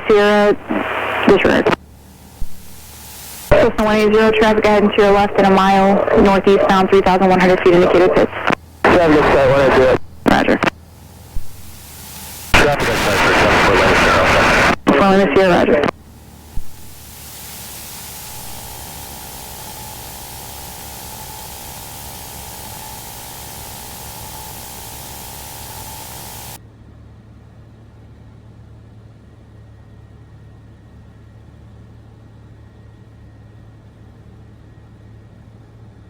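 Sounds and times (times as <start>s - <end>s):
low hum: 0.0s - 26.6s
radio static hiss: 0.0s - 26.6s
faint steady tone: 0.1s - 26.6s.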